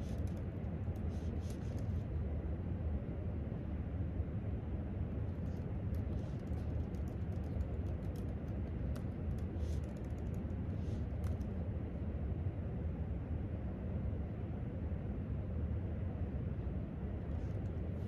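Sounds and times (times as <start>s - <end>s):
typing on laptop keyboard: 0.0s - 2.0s, 5.4s - 11.5s
low room rumble: 0.0s - 18.0s.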